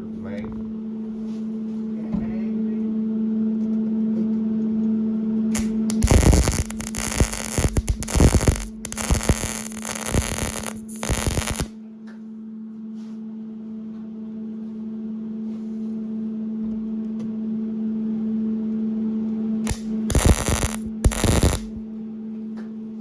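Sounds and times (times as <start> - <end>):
steady hum: 5.6 - 11.7, 19.7 - 21.8
welding arc crackling: 5.6 - 11.7, 19.7 - 21.8.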